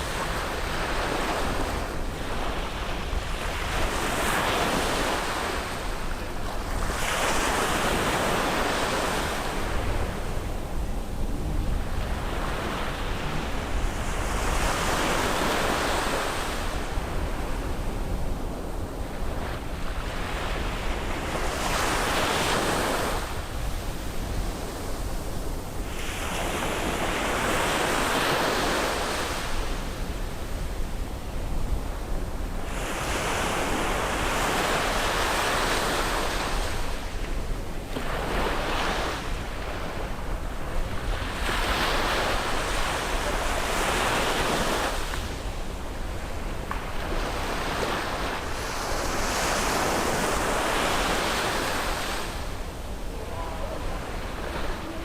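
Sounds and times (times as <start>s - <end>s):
sea waves breaking: 0.0s - 17.9s, 37.9s - 55.0s
steady low rumble: 9.6s - 14.8s.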